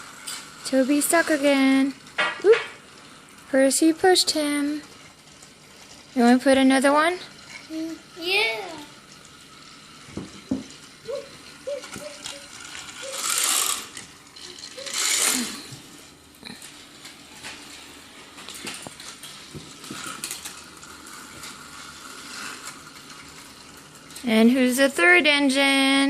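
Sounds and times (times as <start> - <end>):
plastic toy trains being handled: 0.0 - 26.0
rustling bursts: 10.8 - 24.0.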